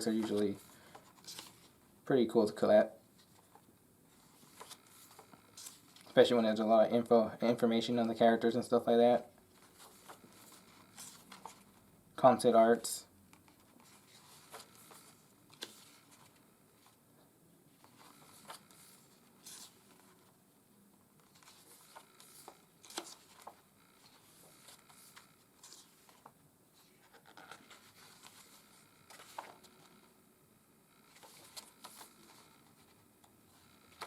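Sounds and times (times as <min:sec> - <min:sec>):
paper pages rustling: 0:00.0 - 0:01.8, 0:03.2 - 0:06.3, 0:09.5 - 0:11.9, 0:13.4 - 0:17.0, 0:17.8 - 0:20.4, 0:21.0 - 0:30.1, 0:31.1 - 0:34.0.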